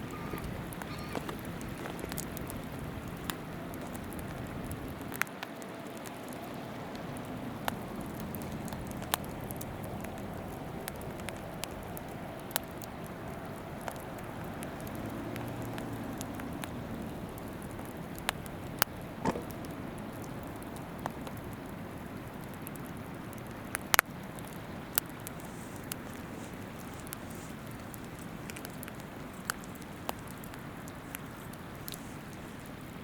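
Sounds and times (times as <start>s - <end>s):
campfire crackling and popping: 0.0s - 33.0s.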